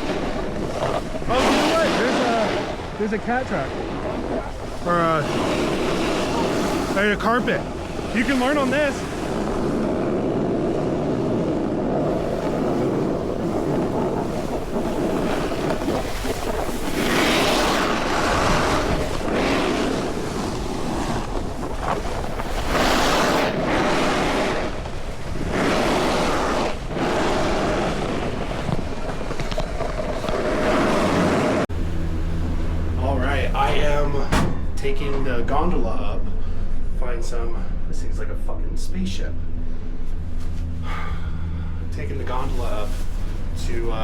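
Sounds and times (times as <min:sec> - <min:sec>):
wind rushing over microphone: 0:00.0 - 0:44.0.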